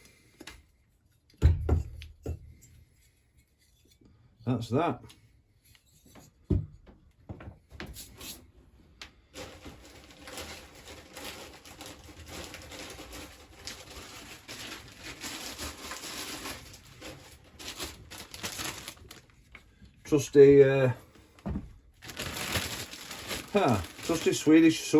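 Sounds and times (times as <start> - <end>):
plastic bag rustling: 9.3 - 24.9.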